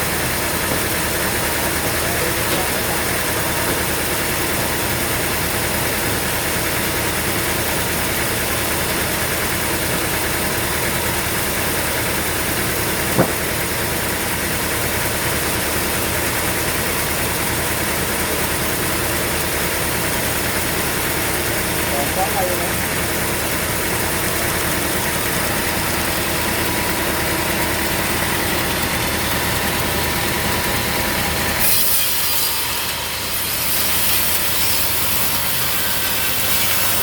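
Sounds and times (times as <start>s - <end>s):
sawmill machinery drone: 0.0s - 37.0s
sharp knock: 13.2s - 13.5s.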